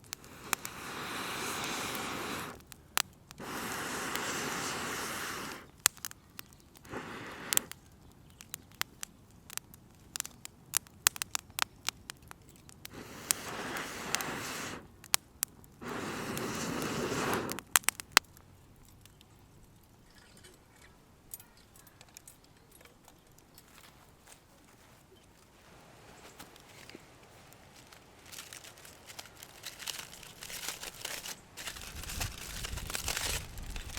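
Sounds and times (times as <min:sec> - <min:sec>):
wood fire crackling and popping: 0:00.0 - 0:33.9
rustling scraping noise: 0:23.6 - 0:33.9.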